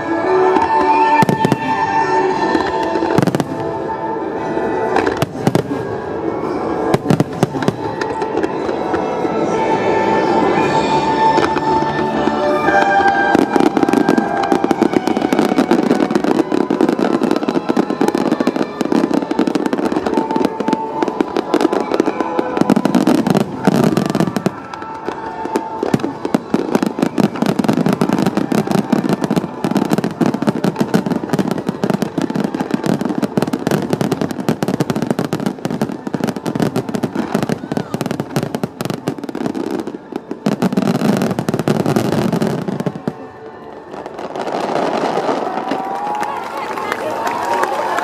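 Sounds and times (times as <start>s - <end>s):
music playing: 0.0s - 45.6s
fireworks bursting and crackling: 0.0s - 48.0s.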